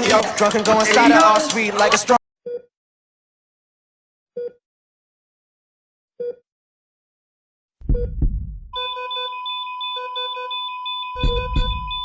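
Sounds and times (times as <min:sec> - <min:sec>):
deep bass hit: 0:07.8 - 0:08.8
pulsing high alarm tone: 0:08.0 - 0:12.0.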